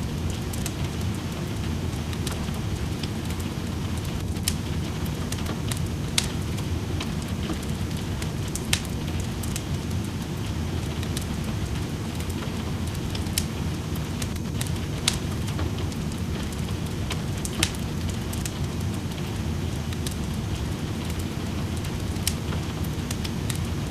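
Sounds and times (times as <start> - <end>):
rain: 0.0 - 23.9
wood fire crackling: 0.0 - 23.9.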